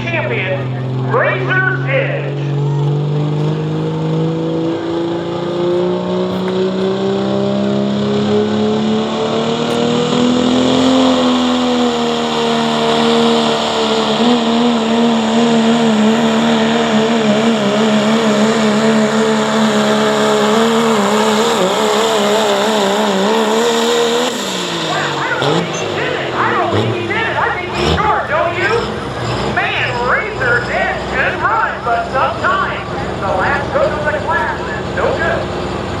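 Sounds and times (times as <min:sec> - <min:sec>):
diesel truck engine at full throttle: 0:00.0 - 0:36.0.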